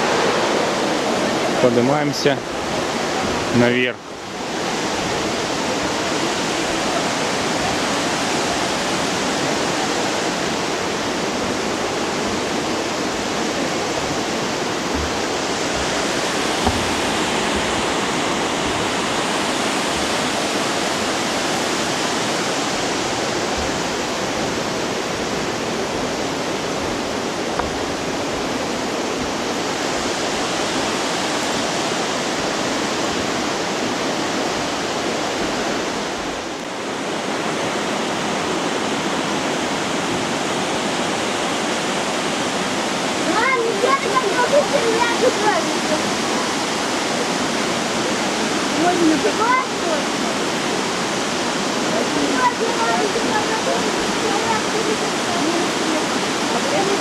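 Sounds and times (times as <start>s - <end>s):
waterfall rushing: 0.0s - 57.0s
faint knocks: 14.7s - 19.0s, 27.5s - 28.6s.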